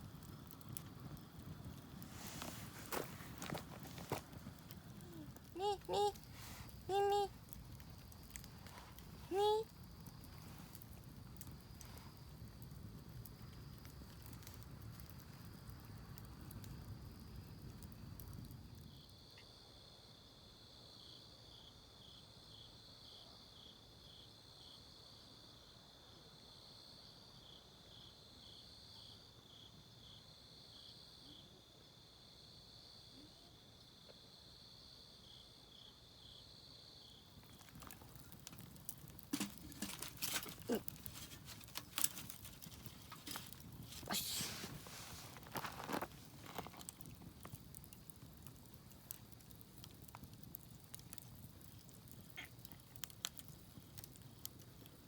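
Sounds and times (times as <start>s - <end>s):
insects trilling: 0.1s - 17.8s, 34.8s - 55.0s.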